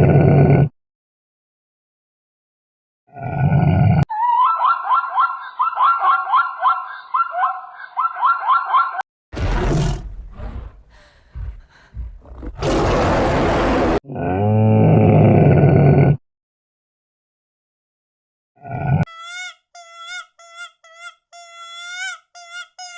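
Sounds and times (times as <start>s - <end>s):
high-pitched animal calls: 4.1s - 9.0s, 19.1s - 22.9s
rough noisy animal calls: 9.4s - 14.0s
low drawn-out animal call: 9.4s - 15.8s.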